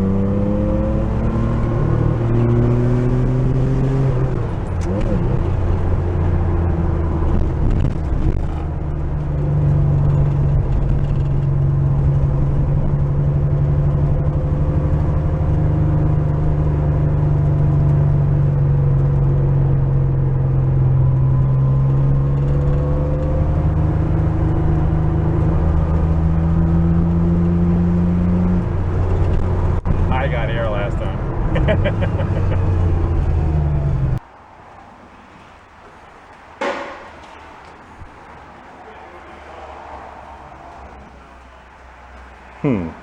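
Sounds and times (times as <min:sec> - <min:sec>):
car engine droning: 0:00.0 - 0:43.0.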